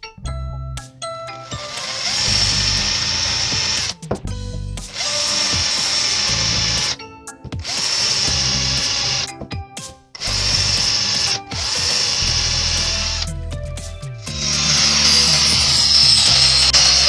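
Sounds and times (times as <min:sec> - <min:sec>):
electric drill drilling wood: 0:14.5 - 0:17.0.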